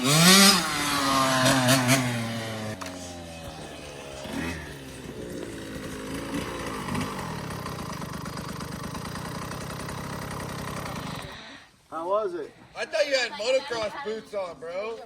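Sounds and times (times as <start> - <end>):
dirt bike engine idling: 0.0 - 11.6.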